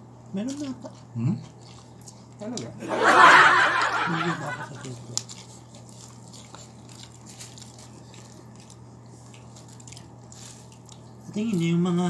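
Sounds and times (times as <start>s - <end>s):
person chewing: 0.4s - 2.4s, 4.6s - 11.3s.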